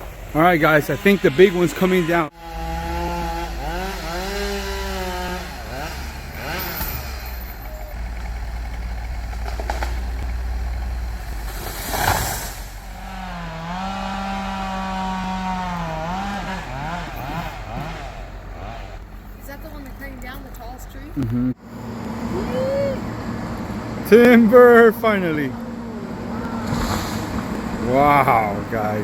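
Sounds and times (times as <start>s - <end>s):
chainsaw engine revving: 0.0s - 19.2s, 22.2s - 29.0s
loud rush: 11.0s - 14.6s.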